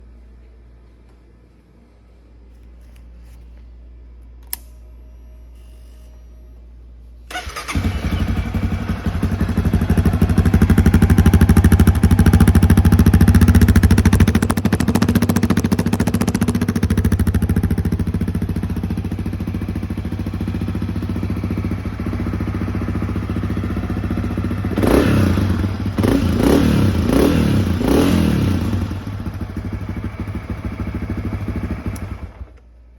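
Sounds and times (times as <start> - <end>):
sharp click: 4.4 - 4.9
motorcycle engine idling: 7.3 - 32.5
motorcycle engine revving: 7.3 - 32.5.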